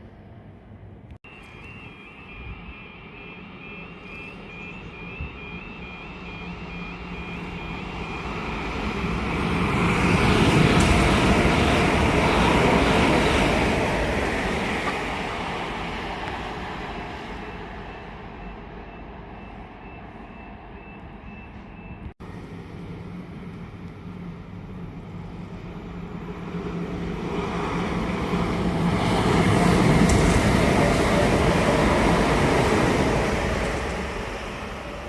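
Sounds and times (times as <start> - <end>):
train passing on rails: 0.0 - 35.0
faint electronic beep: 1.3 - 8.7, 17.4 - 22.1.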